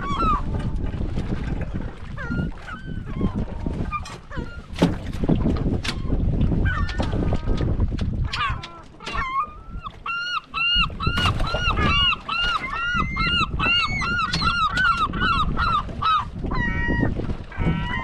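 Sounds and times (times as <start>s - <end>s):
gull yelping calls: 0.0s - 0.6s, 2.2s - 4.7s, 8.2s - 18.0s.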